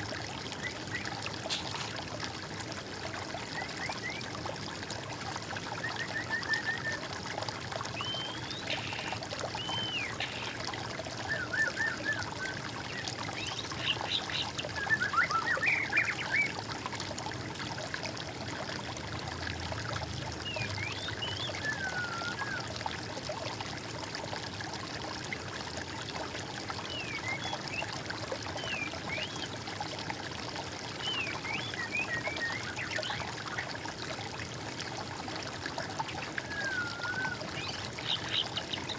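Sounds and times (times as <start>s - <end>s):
water trickling: 0.0s - 38.9s
birds whistling and trilling: 8.0s - 10.6s, 11.2s - 16.5s, 20.5s - 22.7s, 31.0s - 33.2s, 36.4s - 38.9s.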